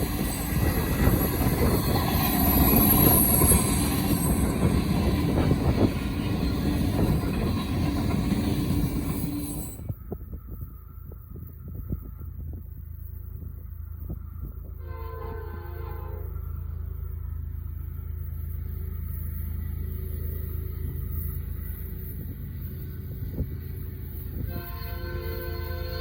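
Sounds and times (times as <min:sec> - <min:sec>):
locomotive engines rumbling: 0:00.0 - 0:26.0
locomotive air horn blasts: 0:14.8 - 0:16.5, 0:24.4 - 0:26.0.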